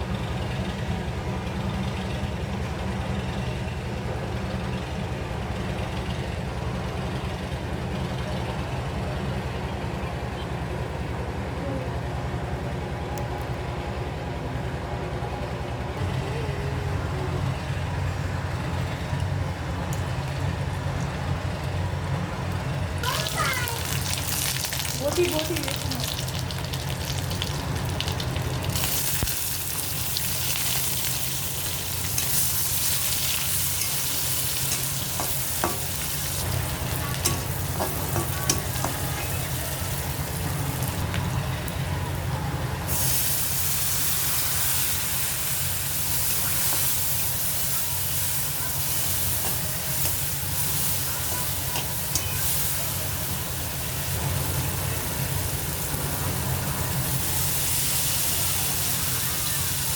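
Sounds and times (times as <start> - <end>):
food sizzling in hot oil: 23.0 - 41.2, 42.9 - 59.9.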